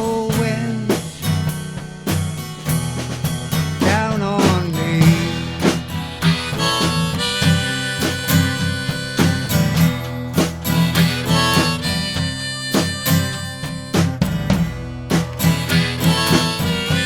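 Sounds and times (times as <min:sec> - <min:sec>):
drum beat: 0:00.0 - 0:17.0
guitar: 0:00.0 - 0:17.0
harmonica playing: 0:05.9 - 0:14.5, 0:15.4 - 0:17.0.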